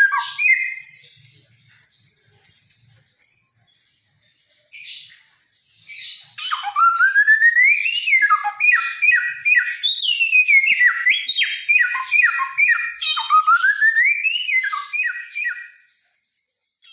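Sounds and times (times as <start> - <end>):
songbird whistling: 0.0 - 1.5, 5.9 - 16.6.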